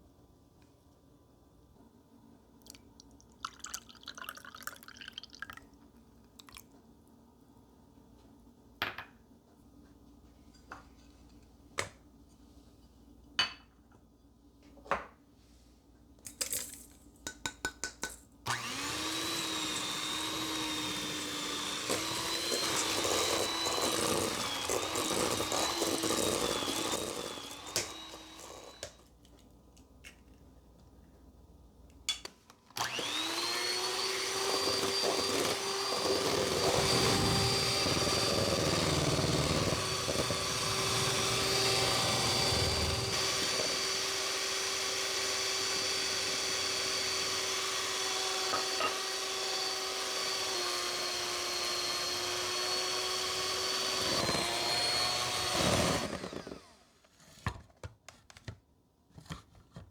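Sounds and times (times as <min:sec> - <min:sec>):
electric mixer humming: 0:18.5 - 0:29.0, 0:32.8 - 0:56.8.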